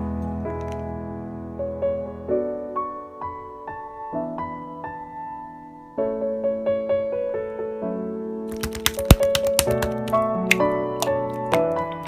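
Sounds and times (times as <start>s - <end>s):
piano music: 0.0s - 12.0s
sharp clicks: 8.5s - 11.7s.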